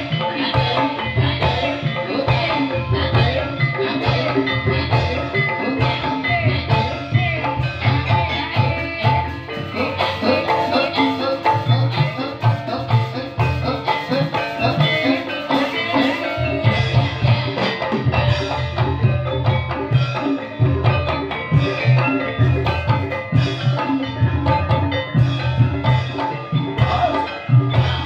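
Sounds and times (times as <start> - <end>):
drums and tuned percussion: 0.0 - 28.0.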